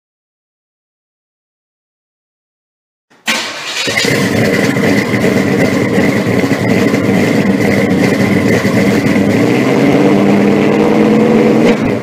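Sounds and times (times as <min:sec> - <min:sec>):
car engine running loudly: 0:03.3 - 0:12.0.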